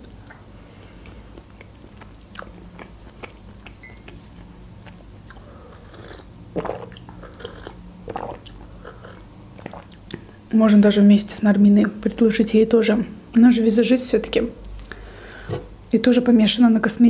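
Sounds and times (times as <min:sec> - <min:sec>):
chewing with wet mouth clicks: 0:00.0 - 0:10.3
sipping and swallowing: 0:02.3 - 0:10.4.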